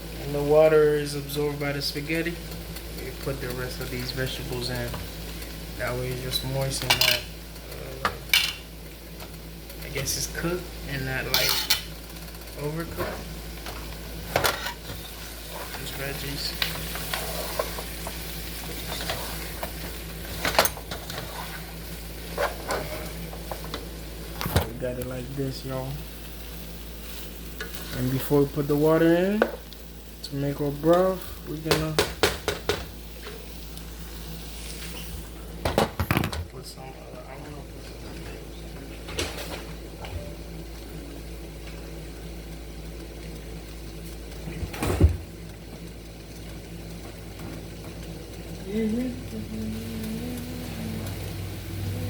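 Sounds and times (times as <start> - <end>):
vegetables sizzling in a pan: 0.0 - 36.1, 36.7 - 52.0
stovetop cooking hum: 0.0 - 52.0
utensil stirring: 14.6 - 23.5.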